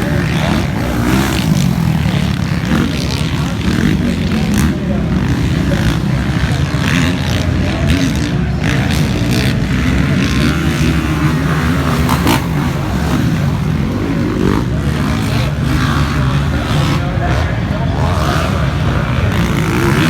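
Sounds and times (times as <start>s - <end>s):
motocross bike engines running: 0.0s - 20.0s.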